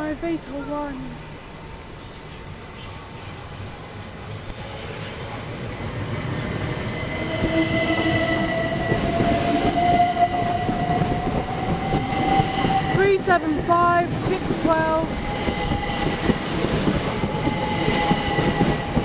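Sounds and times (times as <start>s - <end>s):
electric train rumbling past: 0.0s - 19.0s.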